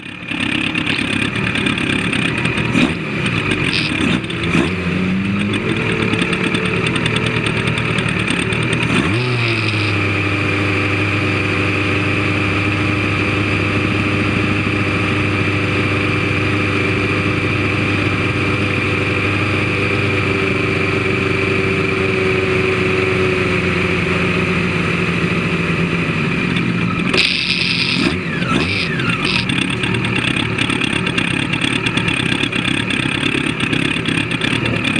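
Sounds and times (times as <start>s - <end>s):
vehicle engine running: 0.0s - 34.9s
short clicks: 3.7s - 4.3s, 9.1s - 10.0s, 27.1s - 29.6s.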